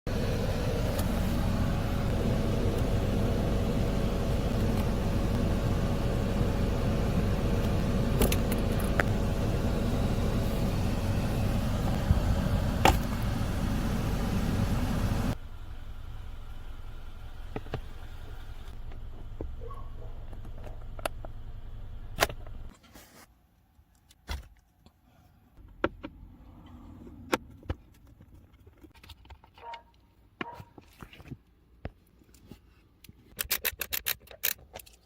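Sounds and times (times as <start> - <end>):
blower motor humming: 0.1 - 16.6.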